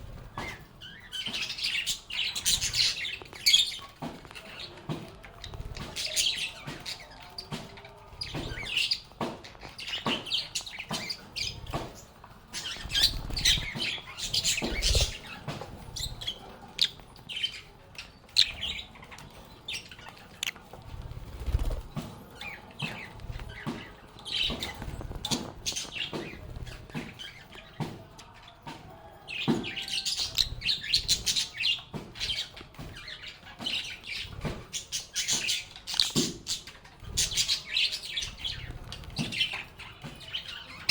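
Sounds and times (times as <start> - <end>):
lovebirds chirping and chattering: 0.0 - 40.9.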